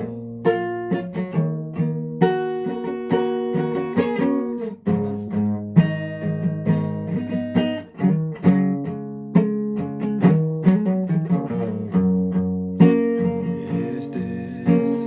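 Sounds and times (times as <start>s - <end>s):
guitar strumming chords: 0.0s - 15.0s.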